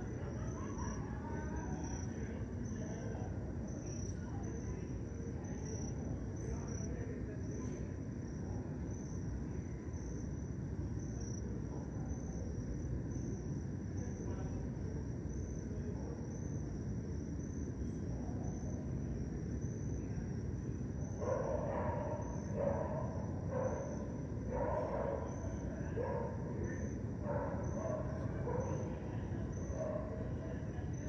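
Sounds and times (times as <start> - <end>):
cricket chirping: 0.0 - 31.0
distant dog barking: 21.2 - 30.5.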